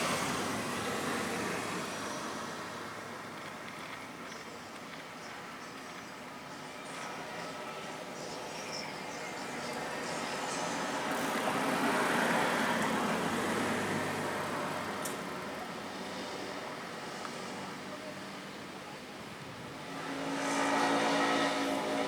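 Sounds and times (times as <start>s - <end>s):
vehicles passing: 0.0s - 4.2s, 9.2s - 22.0s.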